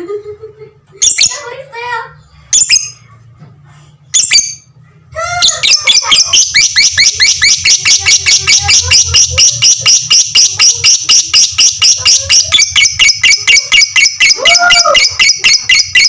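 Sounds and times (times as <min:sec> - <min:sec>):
bird shrill chatter: 0:05.4 - 0:16.0.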